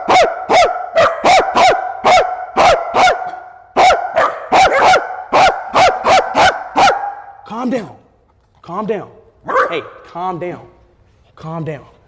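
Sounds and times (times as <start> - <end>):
dog barking rapidly: 0.0 - 7.3, 9.5 - 9.9.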